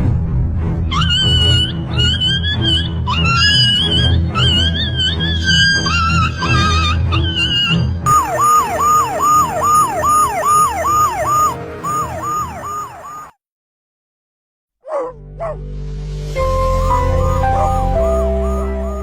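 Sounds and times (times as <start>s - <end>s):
falling electronic siren tone: 8.1s - 13.4s, 16.4s - 19.0s.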